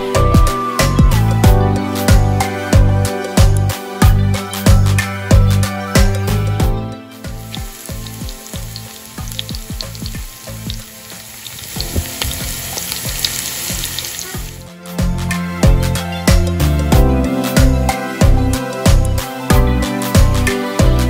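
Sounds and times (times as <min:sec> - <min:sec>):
background music: 0:00.0 - 0:21.0
onions sizzling in oil: 0:07.2 - 0:14.6.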